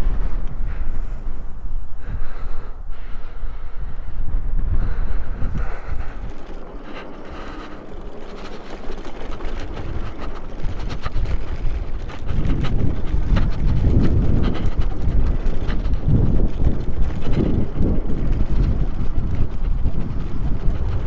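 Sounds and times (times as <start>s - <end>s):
wind buffeting microphone: 0.0s - 21.0s
bike knocks and rattles: 5.4s - 21.0s.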